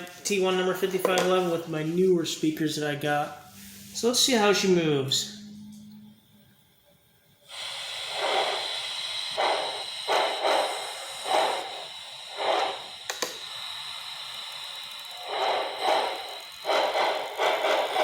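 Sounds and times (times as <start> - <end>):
model train steam hiss: 3.5 - 5.5, 6.5 - 18.0
steam locomotive chuffs: 3.9 - 18.0
sharp click: 13.1 - 13.4.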